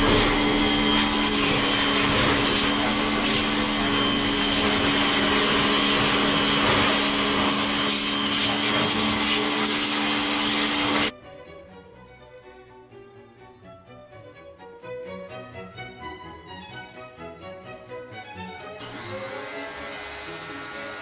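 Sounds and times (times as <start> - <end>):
pressure washer motor hum: 0.0 - 11.1, 18.8 - 21.0
water spray hissing: 0.0 - 11.1
quiet music: 11.1 - 21.0.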